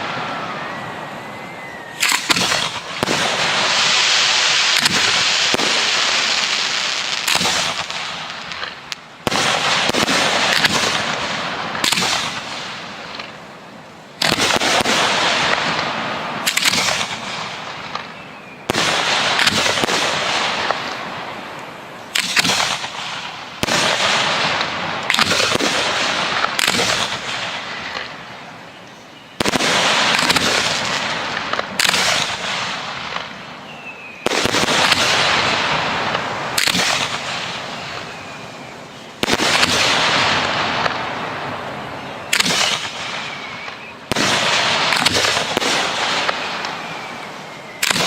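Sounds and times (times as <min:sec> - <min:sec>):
fireworks bangs: 0:00.0 - 0:28.7, 0:29.4 - 0:48.0
fireworks crackle: 0:00.0 - 0:48.0.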